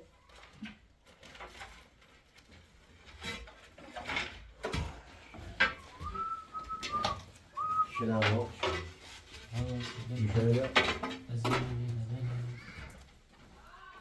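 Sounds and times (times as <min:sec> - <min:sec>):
knocks and clatters: 0:00.3 - 0:13.6
high steady whistle: 0:05.9 - 0:08.1.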